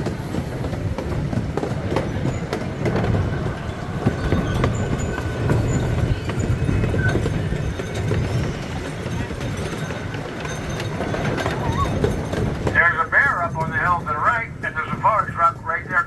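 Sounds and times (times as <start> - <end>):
small train rumbling on track: 0.0 - 16.0
high wheel squeal: 3.1 - 12.5.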